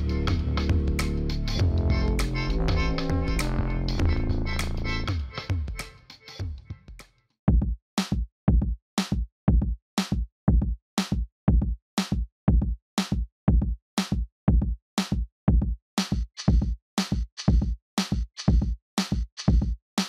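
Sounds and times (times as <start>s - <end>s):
background music: 0.0s - 6.7s
electronic drum beat: 0.0s - 19.8s.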